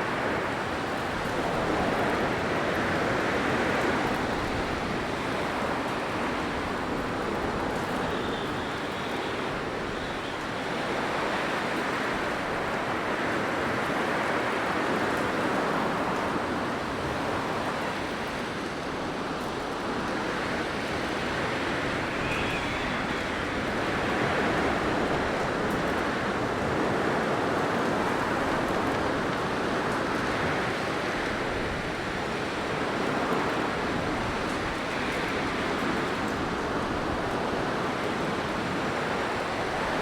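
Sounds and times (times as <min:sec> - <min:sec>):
faint high wind whistle: 0:06.8 - 0:11.8, 0:20.3 - 0:25.8.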